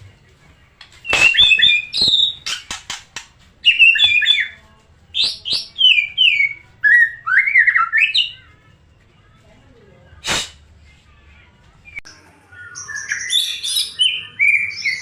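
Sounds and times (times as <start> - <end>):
bird singing whistles: 1.0 - 2.5.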